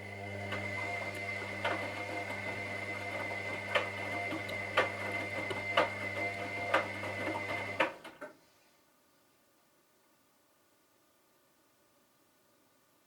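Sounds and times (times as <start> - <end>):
washing machine motor humming: 0.0 - 8.2.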